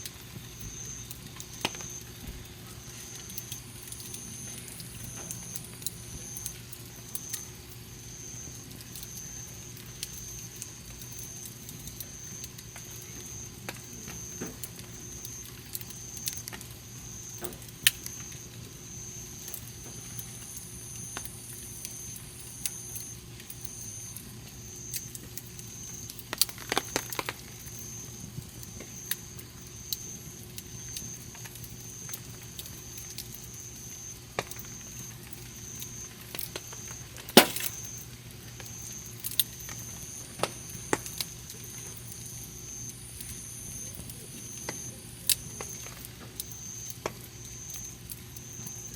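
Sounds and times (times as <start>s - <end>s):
campfire crackling and popping: 0.0s - 7.7s, 24.2s - 48.9s.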